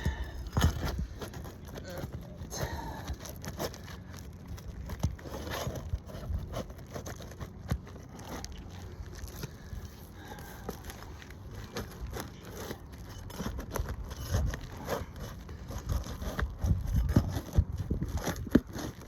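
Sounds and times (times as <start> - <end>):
steady low rumble: 0.0 - 12.5
roof shingle scraping and crackling: 0.0 - 19.0.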